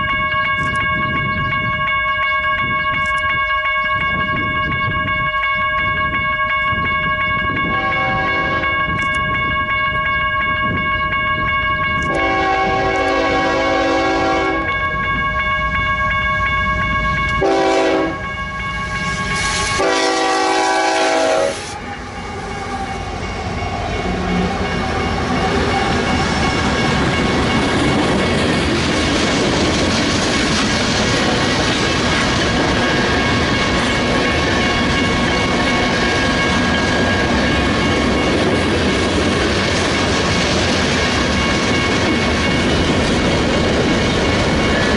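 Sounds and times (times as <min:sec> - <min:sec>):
locomotive air horn: 0:07.7 - 0:08.9, 0:12.0 - 0:14.7, 0:17.4 - 0:18.3, 0:19.6 - 0:21.9.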